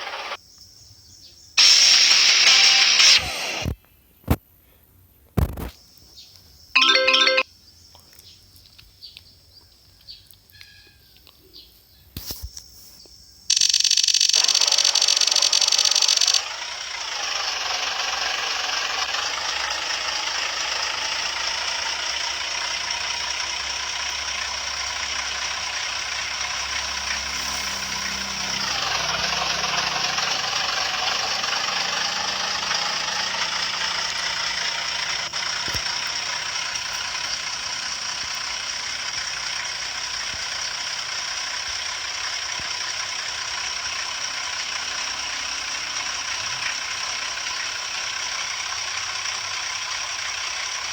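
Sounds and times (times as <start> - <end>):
construction vehicle engine running: 0.0 - 0.4, 6.3 - 7.4, 13.4 - 50.9.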